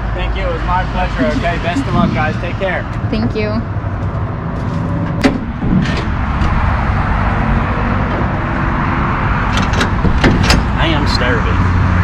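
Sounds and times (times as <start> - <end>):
rushing noise: 0.0 - 3.1.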